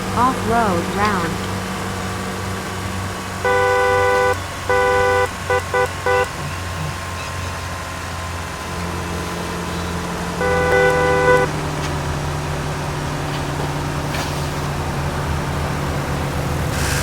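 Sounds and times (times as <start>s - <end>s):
low engine hum: 0.0s - 17.0s
vehicle horn honking: 3.4s - 6.6s, 10.4s - 11.6s.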